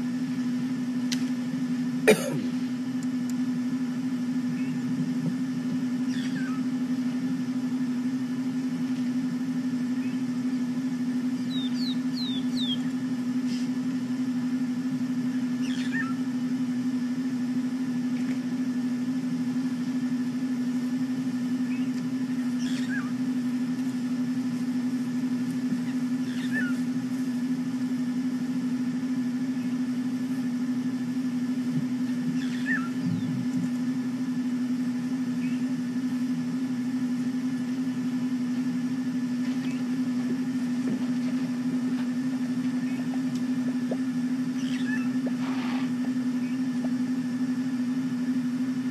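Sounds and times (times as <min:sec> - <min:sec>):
vehicle engine idling: 0:00.0 - 0:48.9
falling bird chirps: 0:06.0 - 0:06.6, 0:15.6 - 0:16.2, 0:21.6 - 0:23.2, 0:25.8 - 0:26.9, 0:32.3 - 0:33.3, 0:44.5 - 0:46.7.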